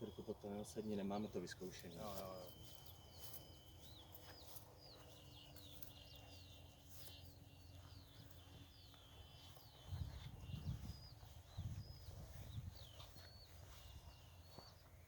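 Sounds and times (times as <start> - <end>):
faint steady high tone: 0.0 - 12.5
small birds chirping: 0.0 - 15.0
low wind rumble: 8.6 - 14.3.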